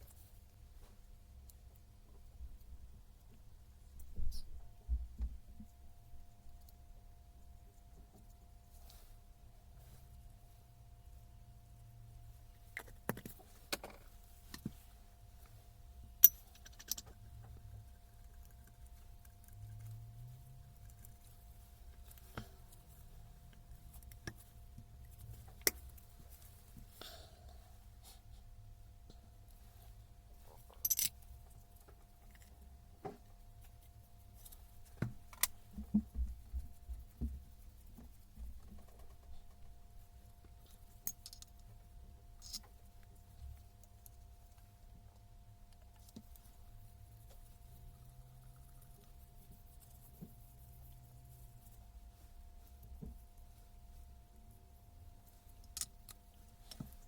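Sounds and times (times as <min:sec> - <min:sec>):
faint steady hum: 0:00.0 - 0:57.0
metallic clink: 0:16.2 - 0:17.0.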